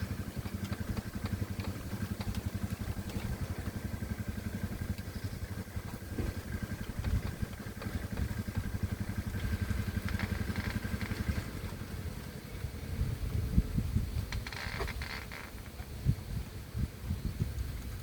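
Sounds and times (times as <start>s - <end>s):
hand tractor engine chugging: 0.0s - 11.8s.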